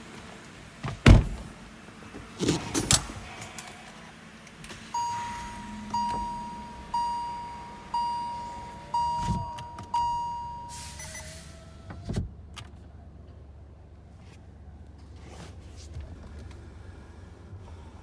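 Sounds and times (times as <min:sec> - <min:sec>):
car warning chime dinging: 0:04.9 - 0:11.4.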